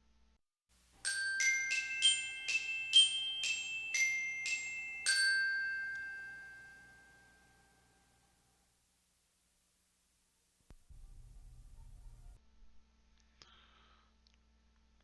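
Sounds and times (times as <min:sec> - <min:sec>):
bell-like mallet chime jingle: 0:01.0 - 0:08.1.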